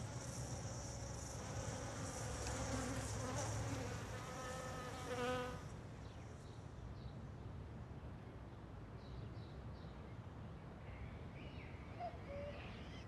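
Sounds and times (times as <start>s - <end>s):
single bee buzzing close: 0.2s - 5.7s.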